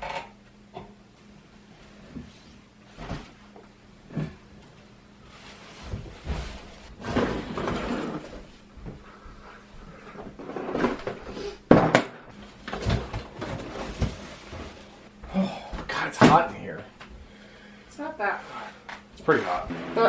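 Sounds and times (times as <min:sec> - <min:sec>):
rustling and scraping: 0:05.2 - 0:08.6, 0:12.4 - 0:15.1.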